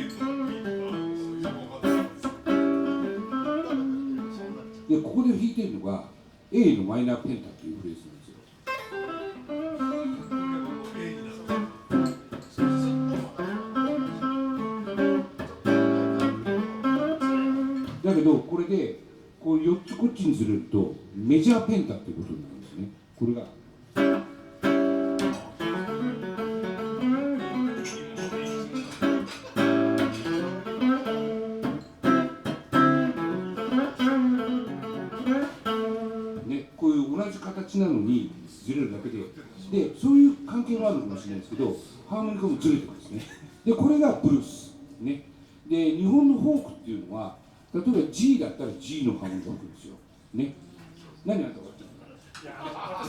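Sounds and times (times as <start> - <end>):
blues guitar playing: 0.0 - 4.9, 8.6 - 18.1, 23.7 - 36.8.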